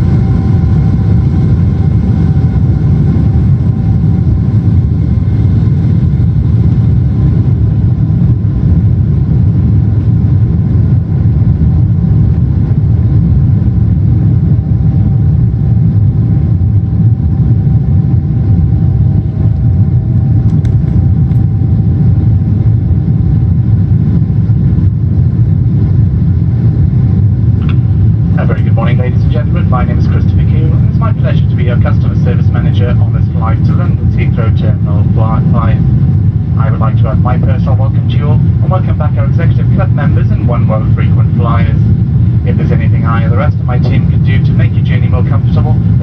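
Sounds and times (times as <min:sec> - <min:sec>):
airplane cabin roar: 0:00.0 - 0:46.0
faint steady hums: 0:00.0 - 0:46.0.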